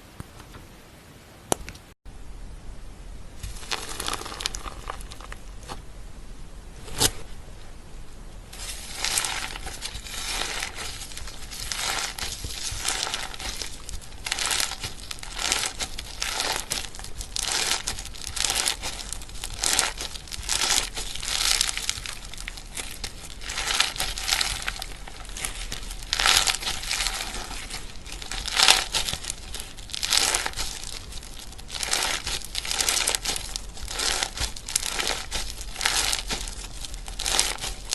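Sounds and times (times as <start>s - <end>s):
slime squished by hand: 8.6s - 37.9s.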